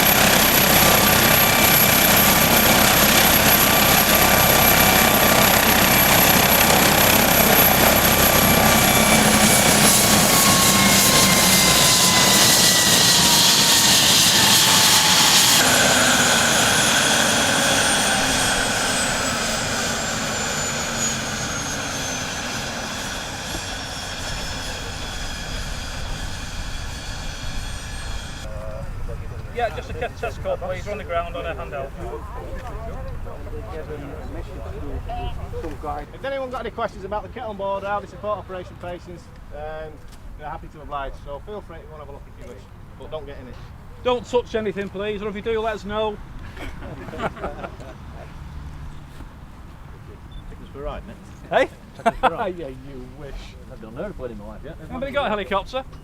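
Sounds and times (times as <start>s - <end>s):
helicopter turbine whine: 0.0s - 56.0s.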